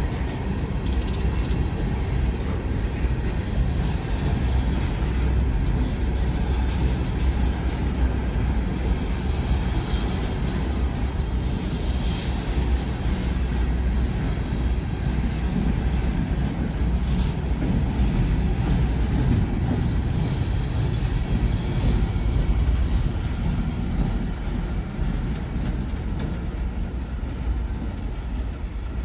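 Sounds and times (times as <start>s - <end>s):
train rumbling past: 0.0s - 29.0s
high wheel squeal: 0.8s - 11.2s.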